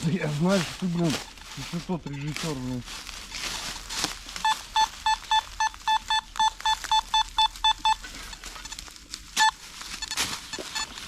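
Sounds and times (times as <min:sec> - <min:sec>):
metal detector beeping: 0:00.8 - 0:01.4, 0:04.4 - 0:11.0.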